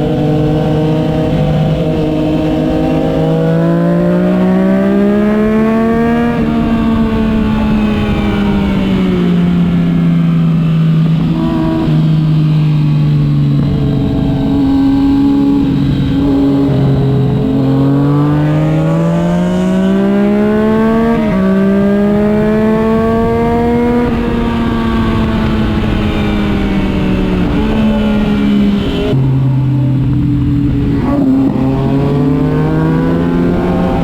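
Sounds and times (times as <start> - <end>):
motorcycle engine accelerating: 0.0 - 34.0.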